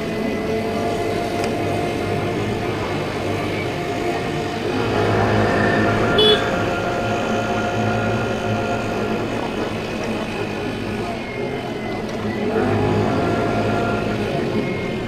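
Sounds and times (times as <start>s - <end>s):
road and traffic noise: 0.0s - 15.0s
scooter engine running: 0.0s - 15.0s.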